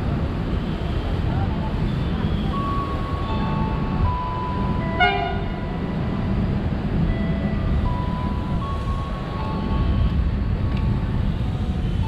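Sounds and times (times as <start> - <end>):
train rumble: 0.0 - 12.0
train horn toot: 5.0 - 5.6.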